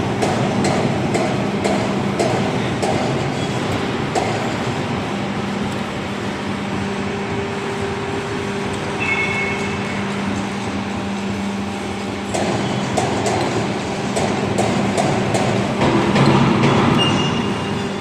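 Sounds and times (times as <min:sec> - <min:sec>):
hydraulic machine humming: 0:00.0 - 0:18.0
high squeal: 0:09.0 - 0:10.1
high steady tone: 0:09.0 - 0:10.2
sharp knocks: 0:12.3 - 0:17.5.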